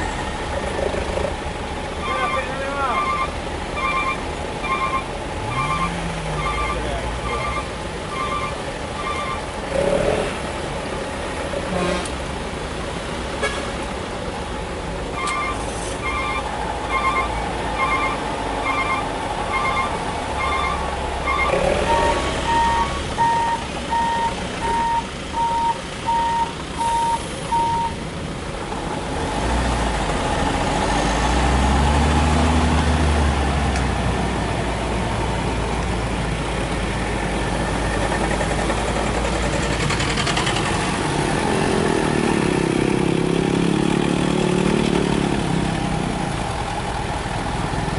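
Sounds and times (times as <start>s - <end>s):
reversing alarm beeping: 2.0s - 9.5s, 15.2s - 28.0s
diesel engine revving: 2.7s - 47.9s.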